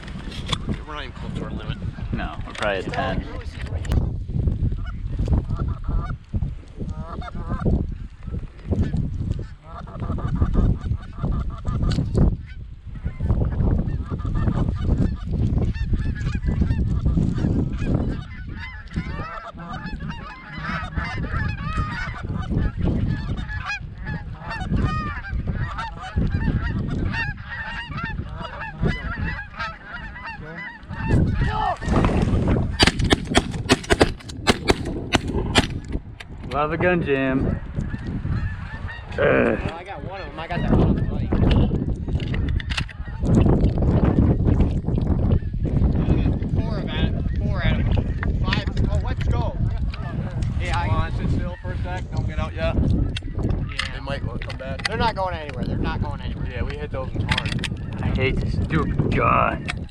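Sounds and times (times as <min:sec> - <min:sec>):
wind rumble on microphone: 0:00.0 - 0:59.9
geese honking: 0:06.9 - 0:07.8, 0:08.8 - 0:12.6, 0:13.8 - 0:35.9, 0:37.4 - 0:41.1
shotgun blasts: 0:32.8 - 0:35.9.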